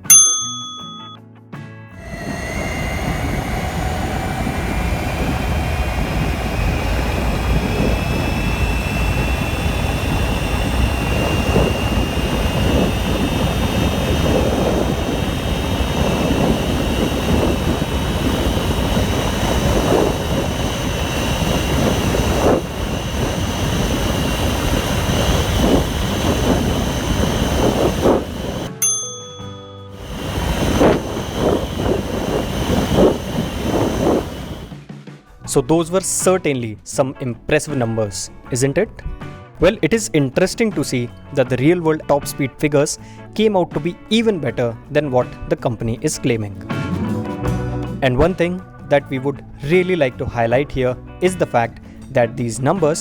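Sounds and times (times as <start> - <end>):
short chime-like tone: 0.0 - 1.2, 28.7 - 29.9
low wind rumble: 2.0 - 28.7, 30.0 - 34.8
electric scooter motor whine: 2.0 - 34.8.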